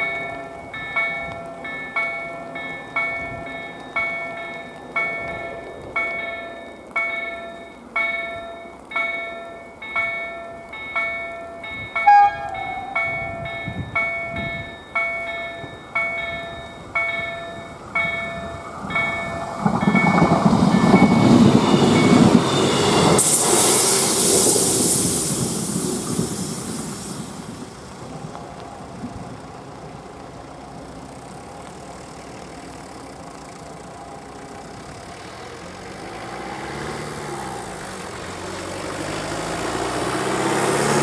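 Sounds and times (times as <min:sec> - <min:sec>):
level crossing bells: 0:00.0 - 0:23.2
train passing: 0:00.0 - 0:41.0.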